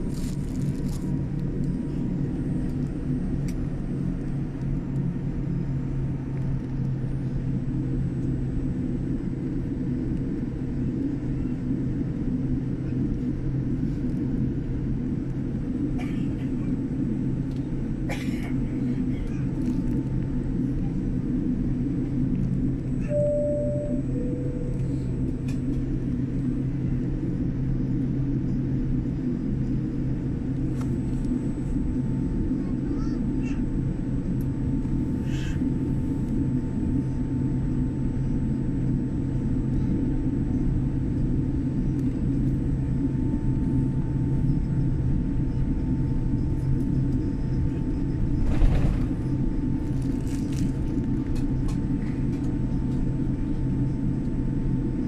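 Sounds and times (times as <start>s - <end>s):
airliner cabin rumble and hum: 0.0s - 55.0s.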